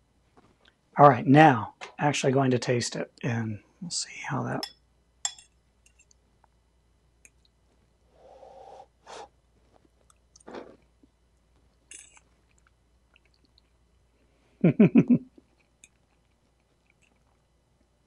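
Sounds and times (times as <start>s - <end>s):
person chewing: 9.7s - 11.0s, 11.8s - 13.8s, 15.4s - 17.5s.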